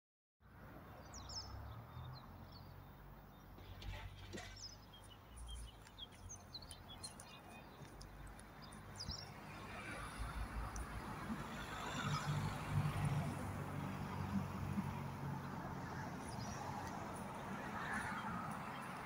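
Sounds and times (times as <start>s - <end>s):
small birds chirping: 0.9s - 11.1s.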